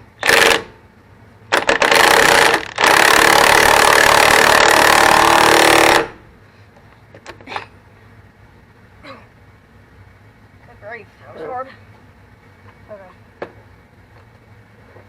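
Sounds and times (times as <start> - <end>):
impact wrench running: 0.2 - 0.8, 1.5 - 6.2.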